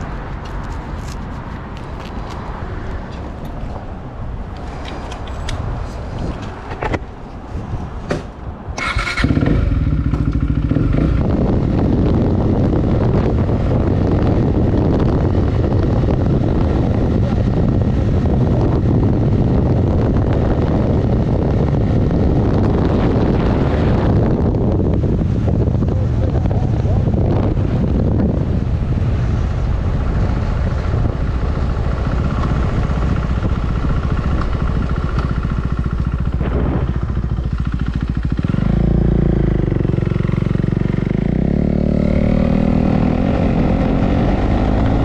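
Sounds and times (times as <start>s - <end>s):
wind rushing on microphone: 0.0s - 45.0s
motorcycle engine: 8.8s - 18.2s, 29.5s - 45.0s.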